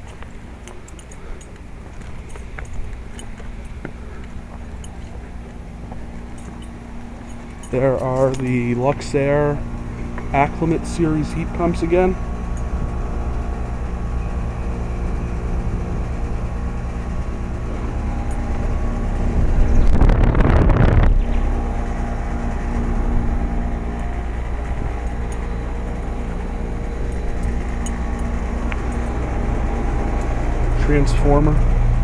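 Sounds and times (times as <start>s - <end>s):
heat pump compressor and fan hum: 0.0s - 32.0s
loud rush of noise: 17.0s - 32.0s.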